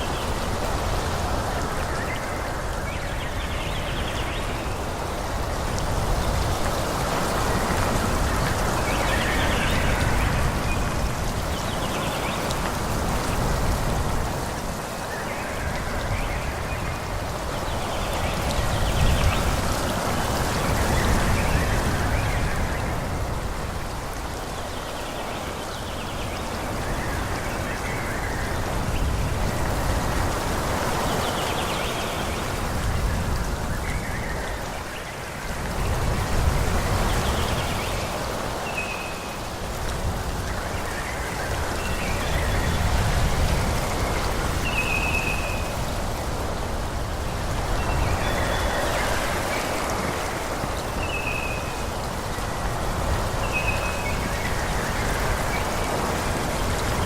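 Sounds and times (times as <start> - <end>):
wind gusting through trees: 0.0 - 57.0.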